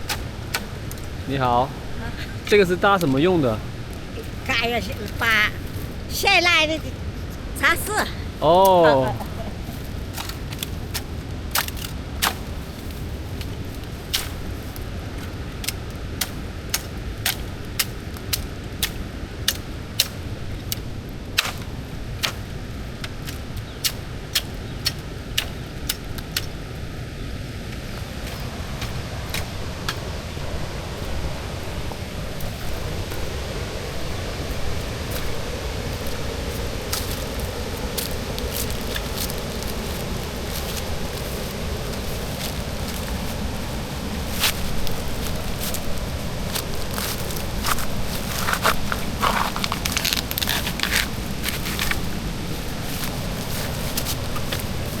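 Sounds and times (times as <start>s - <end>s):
footsteps on hard ground: 0.0s - 6.2s, 19.6s - 55.0s
wind rumble on microphone: 0.0s - 55.0s.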